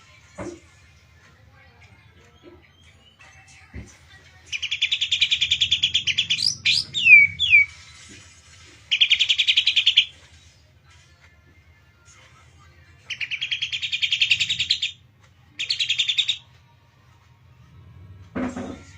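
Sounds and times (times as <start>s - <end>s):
bird downward-sliding whistles: 6.1s - 7.8s.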